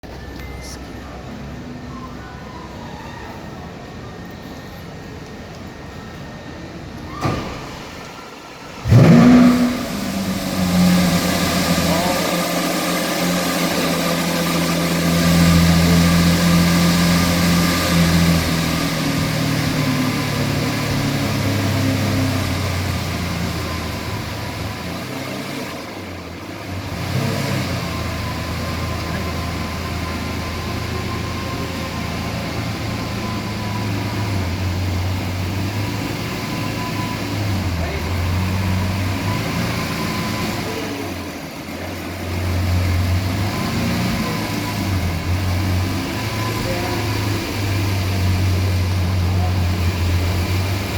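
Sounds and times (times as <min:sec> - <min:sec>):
car engine starting and idling: 0:00.0 - 0:50.9.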